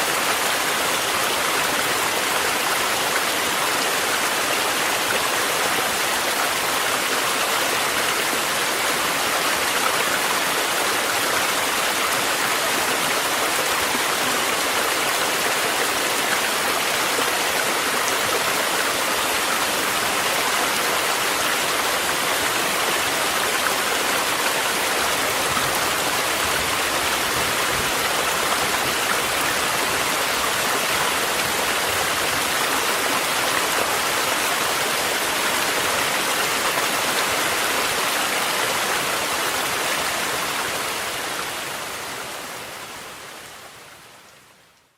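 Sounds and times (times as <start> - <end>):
stream rushing: 0.0 - 44.8
rainfall: 0.0 - 44.9.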